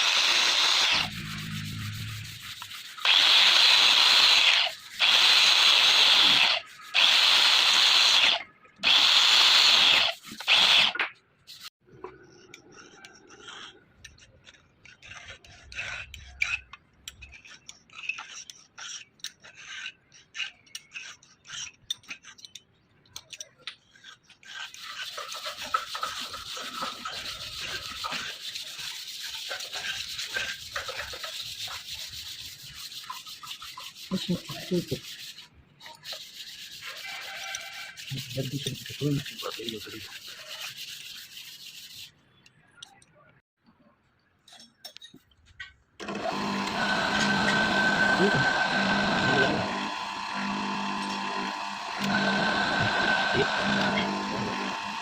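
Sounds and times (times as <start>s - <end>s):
hand rubbing on metal: 1.0s - 7.3s, 23.2s - 42.2s.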